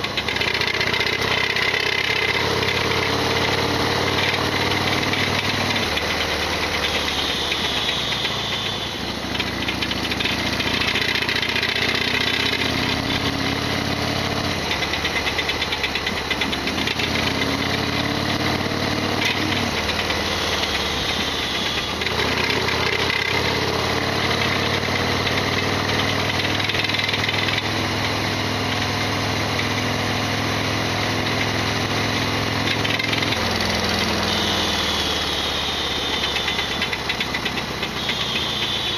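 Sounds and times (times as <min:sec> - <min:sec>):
rattly mechanical clatter: 0:00.0 - 0:28.9, 0:35.4 - 0:38.8
motorcycle engine running: 0:00.0 - 0:38.9.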